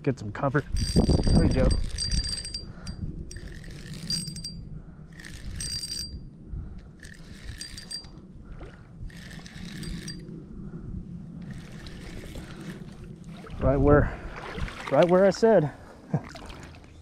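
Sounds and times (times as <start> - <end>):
fishing reel whirring: 0.7 - 8.2, 9.0 - 10.3, 11.4 - 13.0
low steady rush: 1.4 - 14.4.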